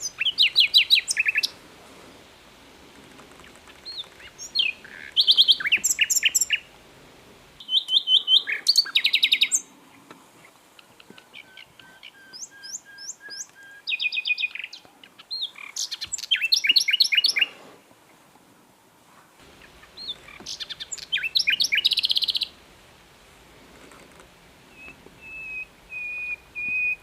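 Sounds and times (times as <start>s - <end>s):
nightingale singing: 0.0s - 1.6s, 3.3s - 6.8s, 7.6s - 17.6s, 19.4s - 22.6s, 24.6s - 27.0s.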